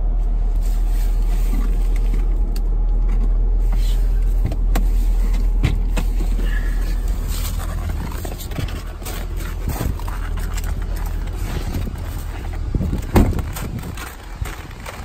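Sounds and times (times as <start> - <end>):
car engine idling: 0.0 - 15.0
loud thump: 13.1 - 13.5.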